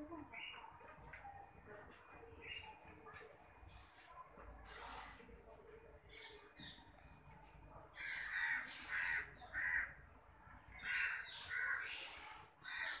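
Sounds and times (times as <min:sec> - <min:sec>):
harsh cawing bird calls: 0:08.0 - 0:10.0, 0:10.7 - 0:13.0.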